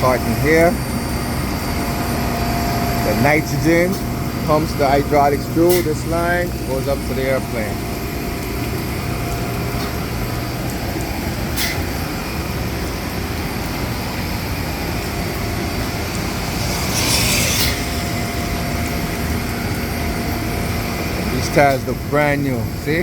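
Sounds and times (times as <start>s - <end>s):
hydraulic cart pump drone: 0.0s - 23.0s
hiss: 16.0s - 18.8s.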